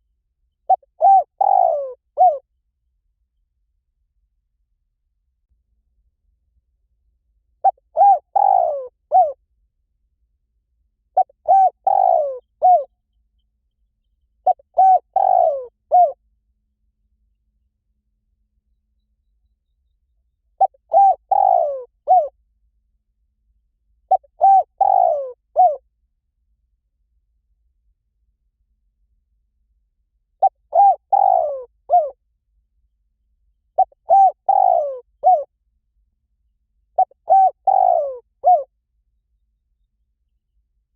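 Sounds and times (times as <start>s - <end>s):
dove cooing: 0.7s - 2.4s, 7.6s - 9.4s, 11.2s - 12.9s, 14.4s - 16.2s, 20.6s - 22.3s, 24.1s - 25.8s, 30.4s - 32.2s, 33.8s - 35.5s, 37.0s - 38.7s.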